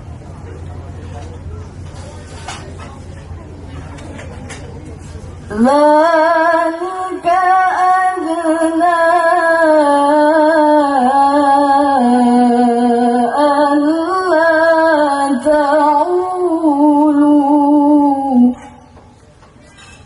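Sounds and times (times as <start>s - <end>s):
woman singing slow melody: 5.5s - 18.9s.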